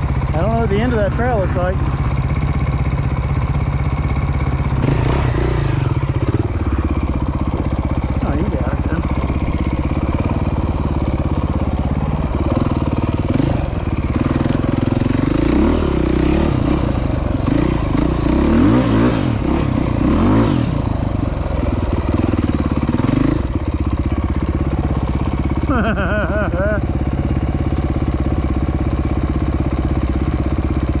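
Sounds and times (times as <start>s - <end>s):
dirt bike engine running: 0.0s - 31.0s
engine revving: 2.9s - 26.9s.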